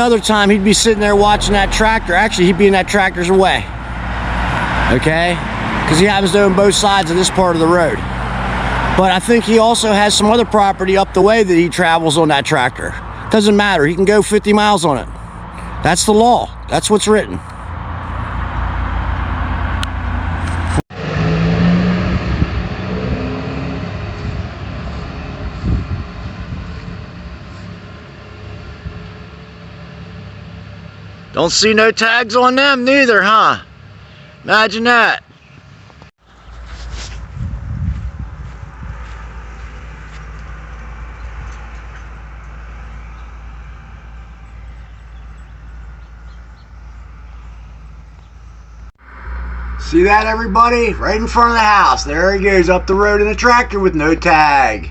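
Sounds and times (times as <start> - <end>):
tractor engine driving past: 0.0 - 32.8, 35.5 - 54.9.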